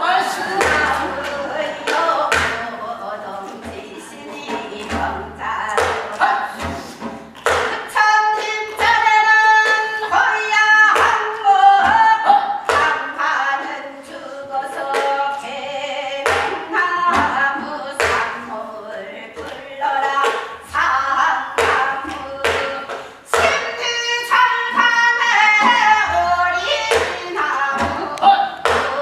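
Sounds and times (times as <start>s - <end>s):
person singing folk song with vibrato: 0.0s - 29.0s
sharp percussive strokes: 0.2s - 9.4s.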